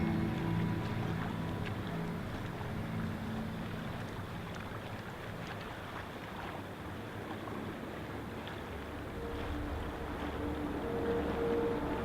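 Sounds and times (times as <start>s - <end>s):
low rushing noise: 0.0s - 4.9s, 8.7s - 12.0s.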